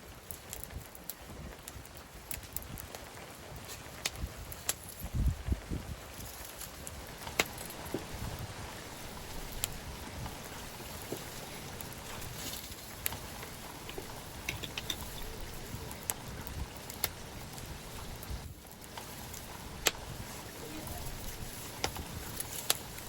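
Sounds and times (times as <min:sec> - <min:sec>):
bonfire flames hissing: 0:00.0 - 0:23.0
burning wood crackling and popping: 0:00.0 - 0:23.0.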